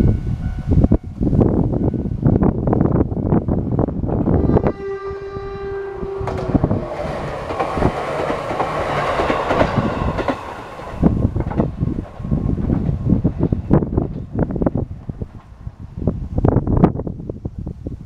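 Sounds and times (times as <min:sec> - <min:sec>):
train wheel and rail noise: 0:00.0 - 0:18.0
train horn: 0:04.2 - 0:07.9.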